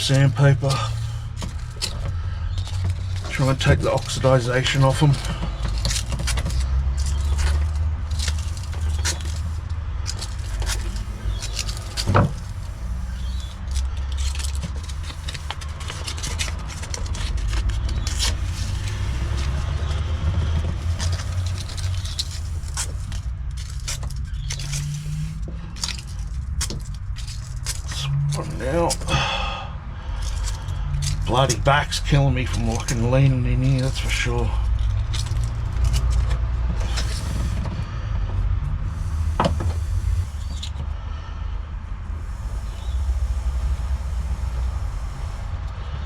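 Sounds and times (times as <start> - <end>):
sandpaper scraping copper wires: 0.0 - 29.1, 30.1 - 38.0, 38.8 - 41.0, 42.0 - 46.0
wires clicking: 0.0 - 29.3, 30.2 - 37.7
steady low rumble: 0.0 - 46.0.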